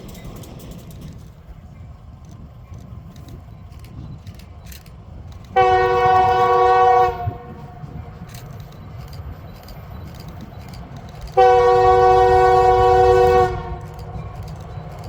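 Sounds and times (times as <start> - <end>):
moving train rumble: 0.0 - 15.0
locomotive air horn chord: 5.6 - 8.0, 11.3 - 14.3.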